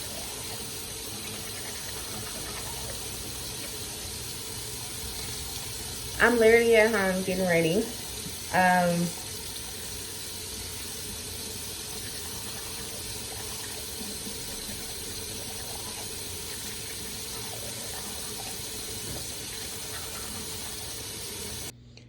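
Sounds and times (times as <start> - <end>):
water running from tap: 0.0 - 21.7.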